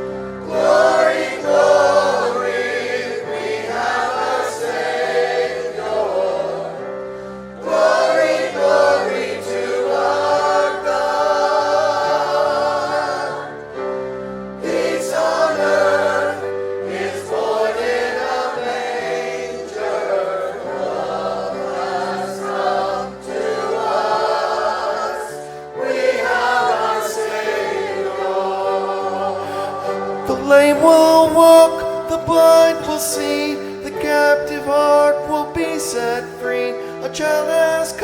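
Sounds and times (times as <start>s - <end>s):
choir singing: 0.0s - 38.0s.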